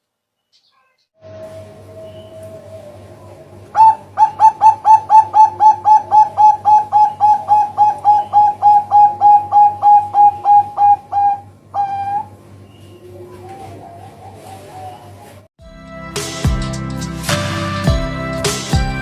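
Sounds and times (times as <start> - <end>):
dove cooing: 1.2 - 15.5.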